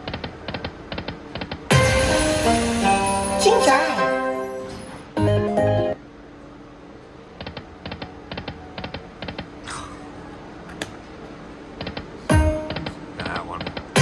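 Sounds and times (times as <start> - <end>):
slot machine chime: 1.7 - 6.0.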